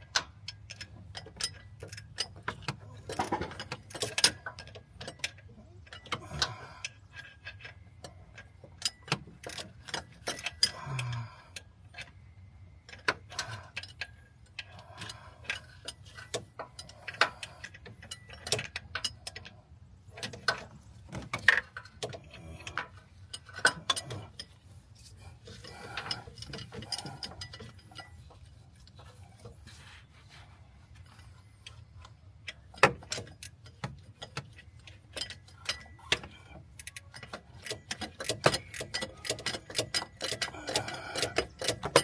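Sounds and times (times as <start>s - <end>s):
ratchet wrench ratcheting: 32.8s - 42.0s
metallic tool clicks and clinks: 35.1s - 42.0s.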